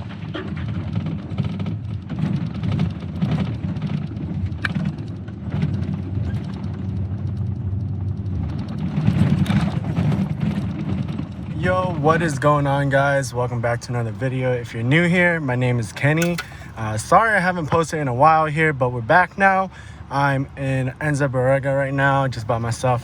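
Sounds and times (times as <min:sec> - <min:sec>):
knocks and rattles: 0:00.0 - 0:11.9
vehicle road rumble: 0:00.0 - 0:23.0.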